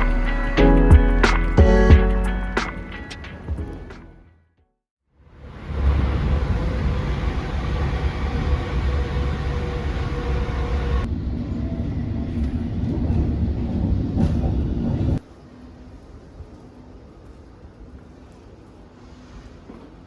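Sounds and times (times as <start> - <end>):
train rumbling and rattling: 5.4 - 18.9.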